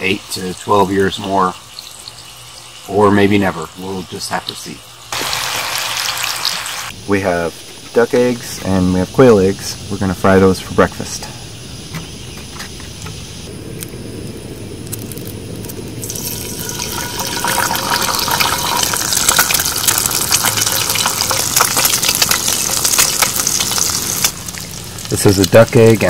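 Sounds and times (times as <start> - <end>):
oil sizzling in a skillet: 0.0 - 7.0, 16.0 - 26.0.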